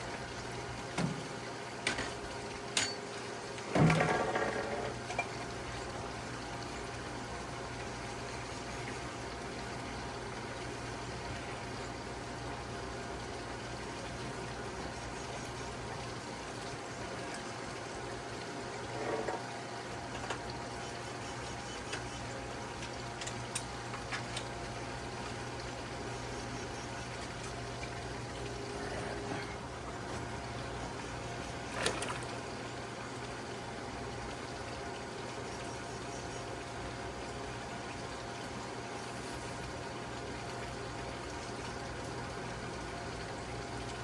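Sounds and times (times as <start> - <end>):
rushing water: 27.0 - 35.5.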